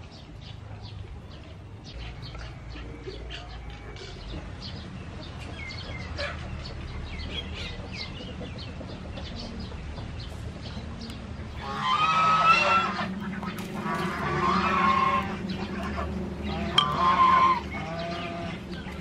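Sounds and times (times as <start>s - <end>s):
birds chirping: 0.0s - 19.0s
low steady rumble: 9.6s - 19.0s.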